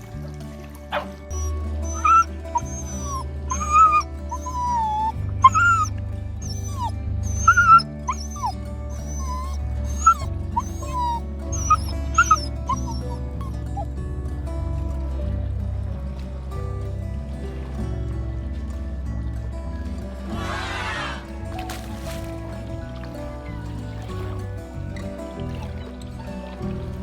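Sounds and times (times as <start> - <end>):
background music with bass line: 0.0 - 27.0
puppy whimpering: 0.9 - 14.0.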